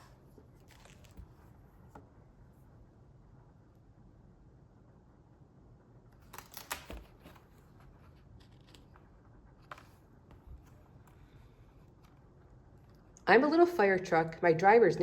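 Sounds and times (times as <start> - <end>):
paper rustling: 0.0 - 1.6, 6.2 - 13.0.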